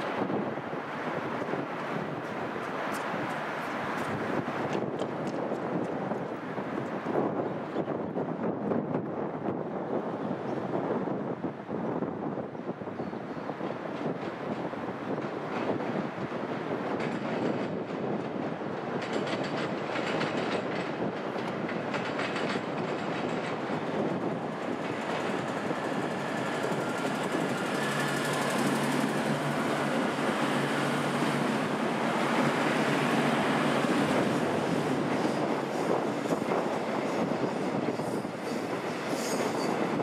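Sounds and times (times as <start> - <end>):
electric train running past: 0.0 - 7.4, 13.5 - 40.0
wheels clacking over rail joints: 13.6 - 40.0.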